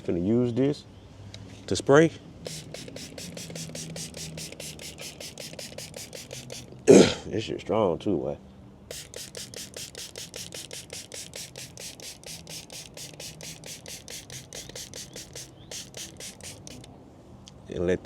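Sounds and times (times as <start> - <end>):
spray bottle spraying: 2.5 - 6.8, 8.9 - 16.9
spray trigger clicks: 2.5 - 6.8, 8.9 - 16.9.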